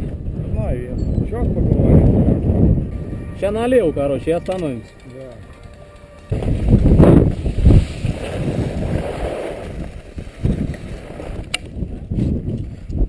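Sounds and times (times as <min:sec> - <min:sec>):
skis scraping over snow: 0:04.3 - 0:13.0.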